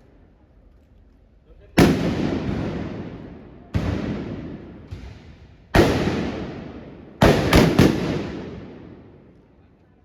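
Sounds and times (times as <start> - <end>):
blunderbuss blasts echoing: 1.8 - 9.4
fainter gunshot: 3.8 - 9.0.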